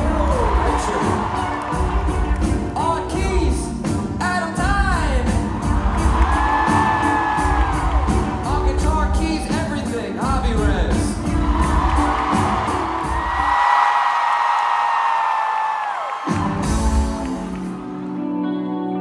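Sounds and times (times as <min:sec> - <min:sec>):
crowd whooping: 0:00.0 - 0:03.2, 0:05.4 - 0:09.6, 0:11.2 - 0:18.3
live band music: 0:00.0 - 0:13.7, 0:16.2 - 0:18.6.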